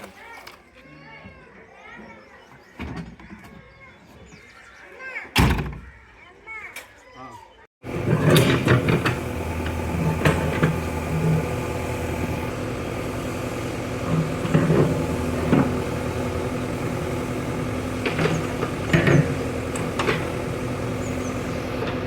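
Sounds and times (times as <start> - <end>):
backhoe diesel engine running: 7.8 - 22.0.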